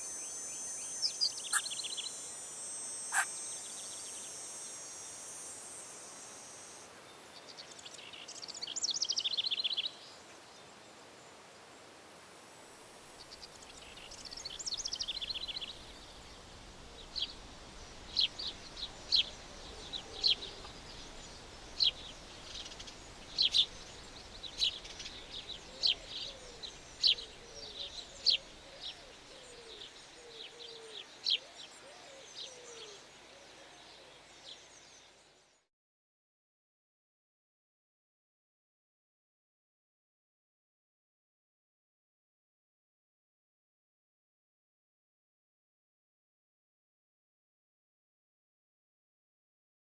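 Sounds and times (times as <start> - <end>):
bird sharp chirps: 0.0 - 2.4, 3.1 - 4.3
bird high trills: 0.0 - 6.8
faint low sliding bird calls: 1.3 - 2.2, 2.9 - 4.3.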